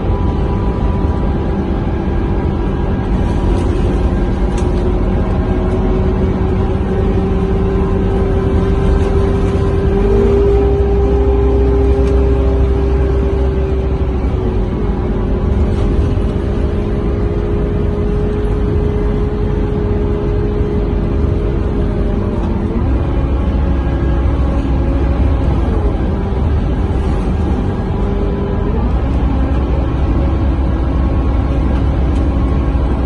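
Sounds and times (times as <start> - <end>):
bus diesel engine drone: 0.0 - 33.0.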